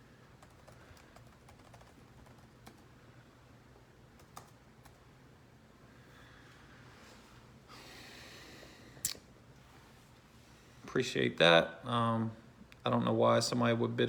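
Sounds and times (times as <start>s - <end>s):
keyboard typing clicks: 0.4s - 2.8s, 4.2s - 5.0s.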